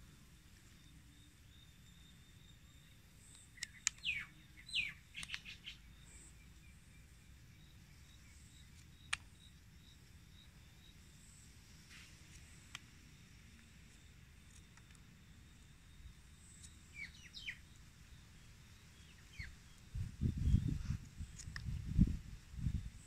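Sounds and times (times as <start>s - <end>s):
bird calling: 3.2s - 6.8s, 16.4s - 17.8s
sharp click: 5.1s - 5.7s.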